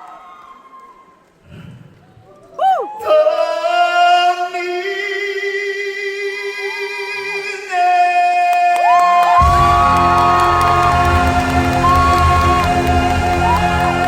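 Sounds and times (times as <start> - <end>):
man singing long held notes: 3.0 - 14.0.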